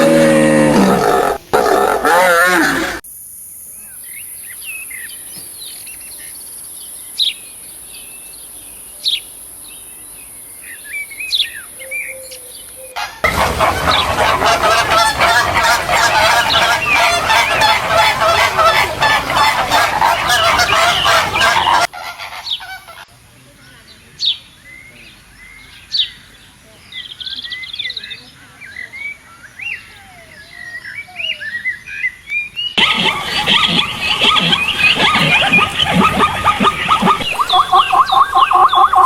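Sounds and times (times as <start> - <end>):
flock of fowl calling: 12.9 - 23.2, 32.8 - 39.0.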